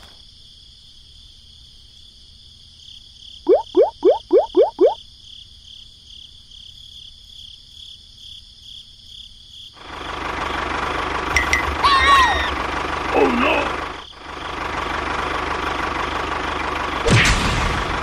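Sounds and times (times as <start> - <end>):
crickets chirping: 0.0 - 10.6, 11.4 - 14.7
frog croaking: 3.5 - 5.0.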